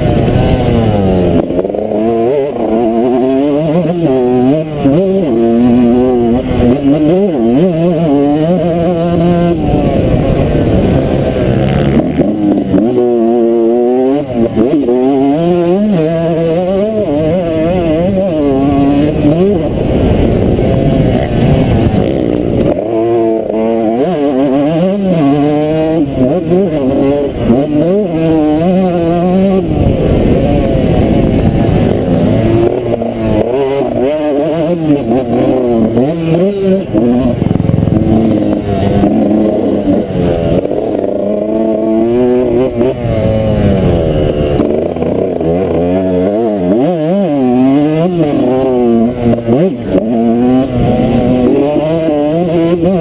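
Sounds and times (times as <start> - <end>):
motocross engine revving: 0.0 - 53.0.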